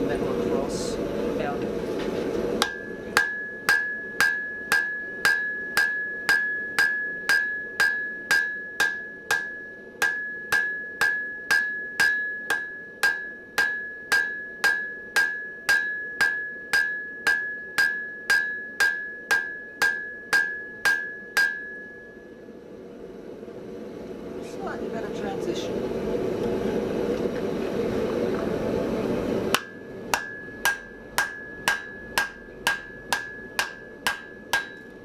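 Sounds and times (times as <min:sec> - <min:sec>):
anvil ringing: 0:02.6 - 0:22.3, 0:29.5 - 0:35.0
hammer striking steel on anvil: 0:02.6 - 0:22.3, 0:29.5 - 0:35.0.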